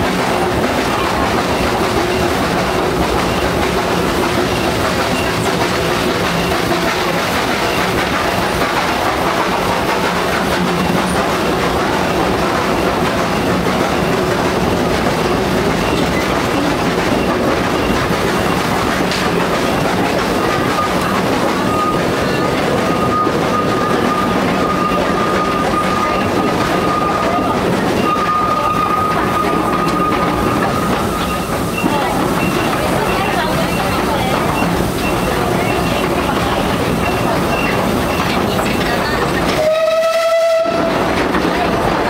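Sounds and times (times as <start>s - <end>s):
small train rumbling: 0.0s - 42.0s
wheels clattering over rail joints: 0.0s - 42.0s
high wheel squeal: 19.3s - 41.1s.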